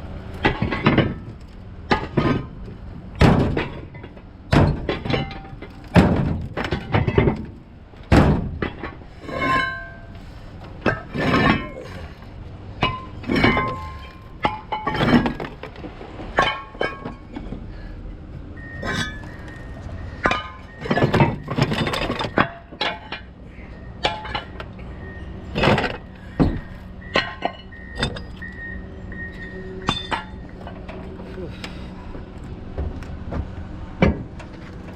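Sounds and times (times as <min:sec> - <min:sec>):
metal truck body crashing: 0:00.3 - 0:17.7, 0:18.6 - 0:23.4, 0:24.0 - 0:24.7, 0:25.4 - 0:28.6, 0:29.2 - 0:31.2
breaking and clinking: 0:03.2 - 0:07.6, 0:10.8 - 0:12.2, 0:12.8 - 0:17.6, 0:18.6 - 0:19.6, 0:20.2 - 0:23.3, 0:29.4 - 0:31.0.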